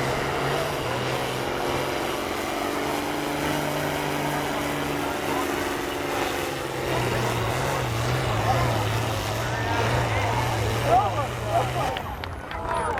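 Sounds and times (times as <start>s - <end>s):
diesel tractor engine running: 0.0s - 12.9s.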